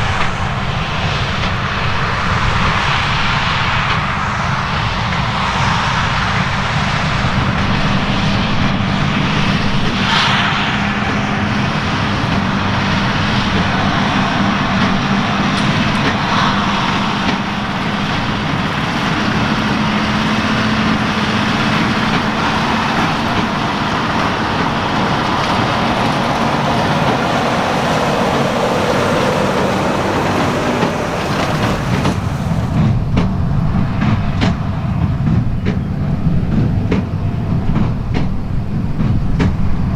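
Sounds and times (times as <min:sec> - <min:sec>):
baler machinery working straw: 0:05.9 - 0:35.4
tractor engine under load: 0:06.8 - 0:39.7.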